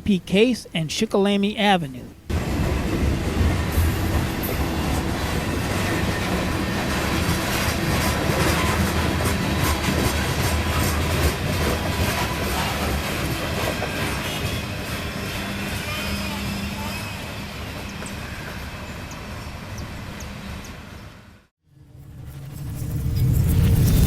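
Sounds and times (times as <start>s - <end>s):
train low rumble: 2.2s - 24.0s
train wheels clicking over rail joints: 2.3s - 15.2s.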